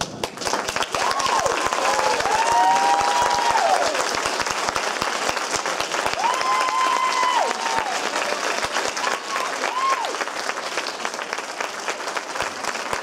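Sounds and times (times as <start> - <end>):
audience applauding: 0.0 - 13.0
whoops: 0.9 - 4.1, 6.1 - 8.3, 9.0 - 10.3.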